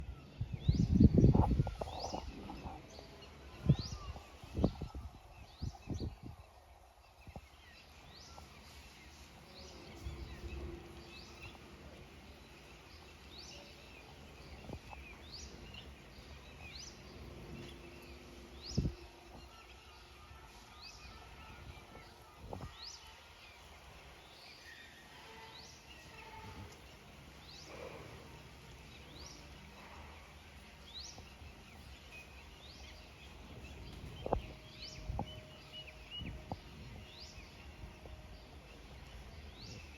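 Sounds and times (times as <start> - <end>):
bird chirping: 0.0 - 39.9
dull low thumps: 33.3 - 35.5.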